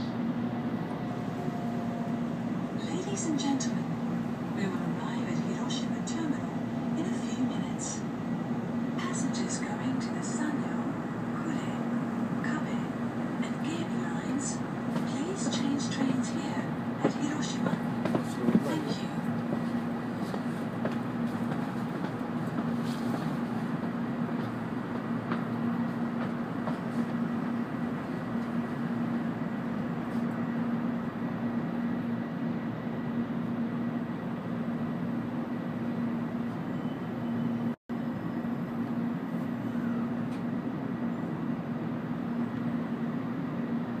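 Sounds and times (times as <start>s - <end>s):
train cabin rumble: 0.0s - 34.8s.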